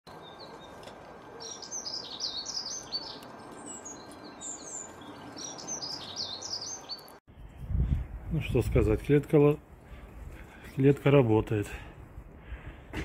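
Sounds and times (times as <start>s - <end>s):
songbird twittering: 0.2s - 7.2s.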